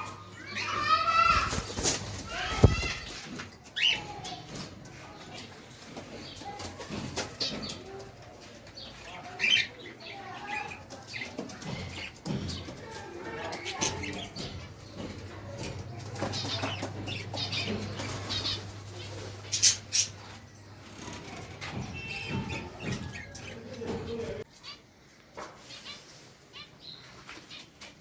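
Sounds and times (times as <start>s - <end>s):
small birds chirping: 0.0s - 28.0s
pigeons flapping wings: 1.2s - 3.5s.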